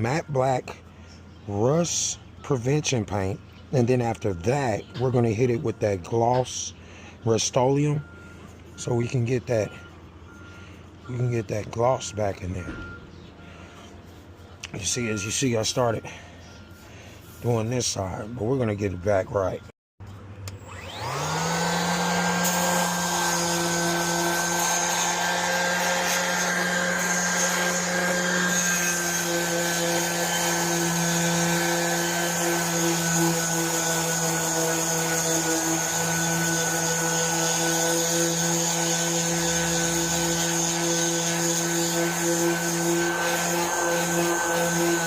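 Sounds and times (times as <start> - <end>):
electric grinder whining: 20.5 - 45.0
grinder on metal: 20.6 - 45.0.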